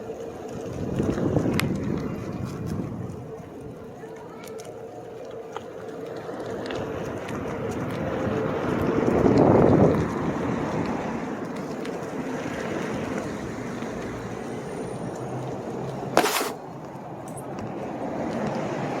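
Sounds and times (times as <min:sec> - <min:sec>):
board wheels rolling: 0:00.0 - 0:19.0
board rolling noise: 0:16.0 - 0:16.6.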